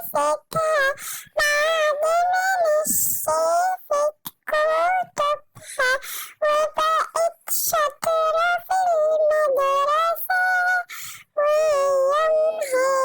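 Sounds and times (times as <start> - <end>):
high-pitched cartoon voice: 11.5 - 13.0.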